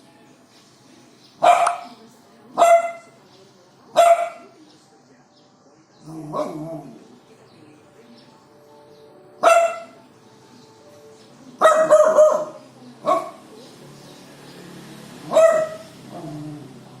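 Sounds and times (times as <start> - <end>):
dog barking: 1.4 - 2.0, 2.6 - 3.2, 3.9 - 4.6, 6.3 - 7.0, 9.4 - 10.0, 11.6 - 13.5, 15.2 - 16.3.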